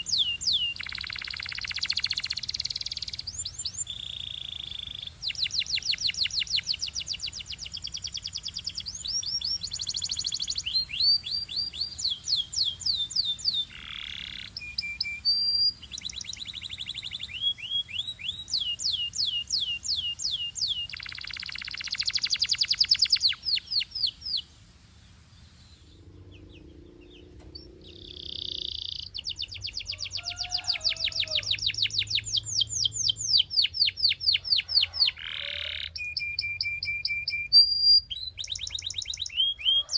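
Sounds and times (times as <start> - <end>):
canary singing rolling trills: 0.0 - 39.9.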